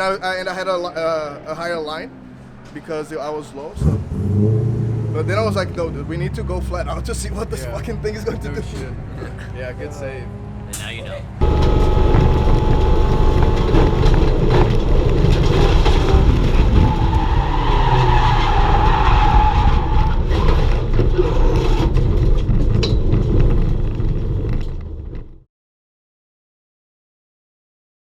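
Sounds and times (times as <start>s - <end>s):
race car engine: 0.0s - 25.4s
tyres squealing: 2.7s - 22.2s.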